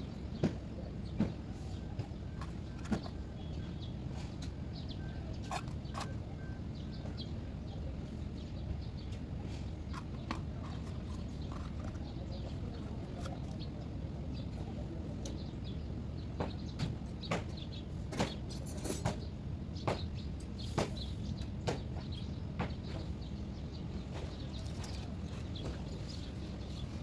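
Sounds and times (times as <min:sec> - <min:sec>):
steady low hum: 0:00.0 - 0:18.1.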